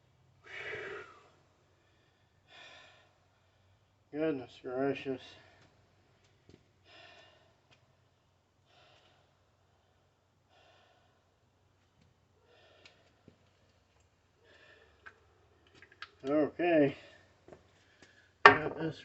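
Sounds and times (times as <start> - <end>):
man breathing softly: 0.4 - 4.0, 6.8 - 11.8, 12.4 - 13.6, 14.4 - 15.5.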